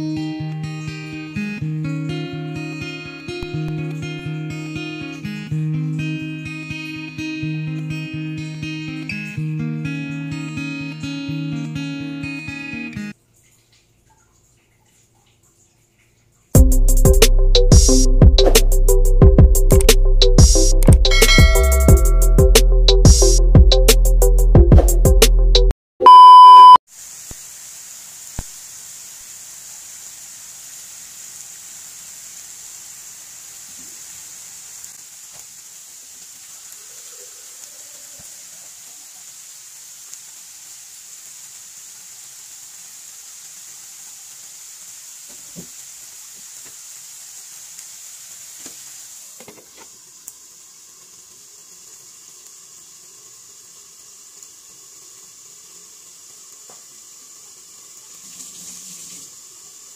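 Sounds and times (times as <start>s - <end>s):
test-tone beep: 21.1s - 22.5s, 26.0s - 26.8s
meat sizzling in a wok: 26.9s - 59.9s.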